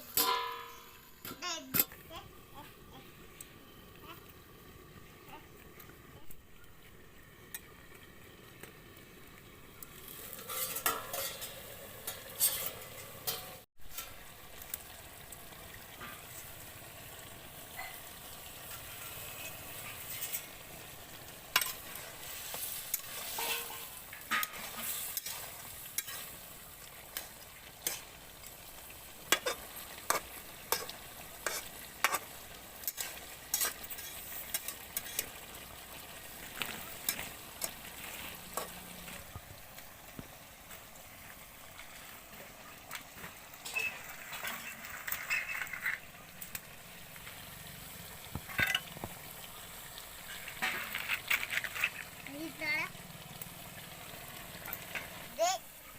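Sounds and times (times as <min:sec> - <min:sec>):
food sizzling in a pan: 0:00.0 - 0:55.9
spoon scraping and clinking pan: 0:10.3 - 0:14.2, 0:18.7 - 0:20.5, 0:22.5 - 0:26.4, 0:29.3 - 0:35.3, 0:43.6 - 0:46.0.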